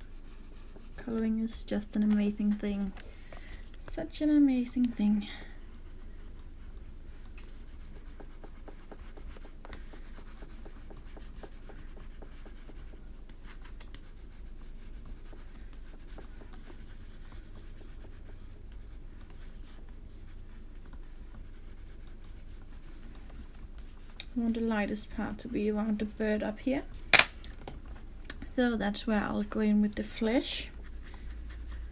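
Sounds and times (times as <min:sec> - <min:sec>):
crayon scratching on paper: 0:07.4 - 0:26.4.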